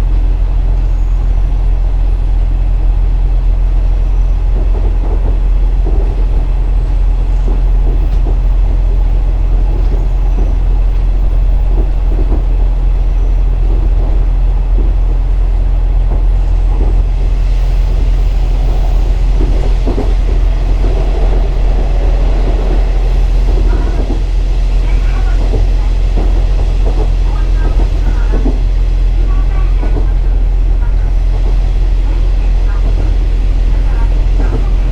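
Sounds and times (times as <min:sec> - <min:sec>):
diesel engine drone: 0:00.0 - 0:34.9
train wheel and rail noise: 0:00.0 - 0:34.9.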